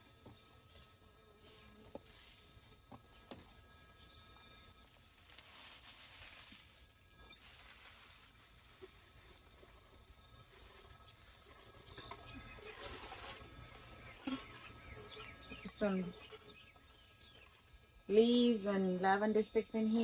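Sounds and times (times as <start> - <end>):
bird chirps: 0.0 - 4.7, 8.9 - 19.1
rustling of dry leaves and sticks: 0.0 - 20.0.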